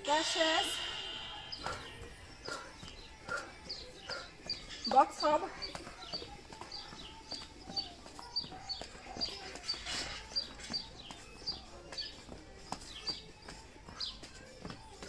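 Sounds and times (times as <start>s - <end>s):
songbird chirping: 0.0s - 15.0s.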